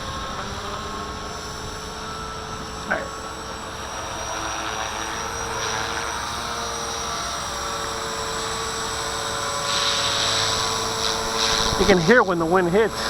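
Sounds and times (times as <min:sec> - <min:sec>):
gusty wind: 0:00.0 - 0:04.8, 0:10.0 - 0:13.0
rc helicopter motor whine: 0:00.0 - 0:13.0.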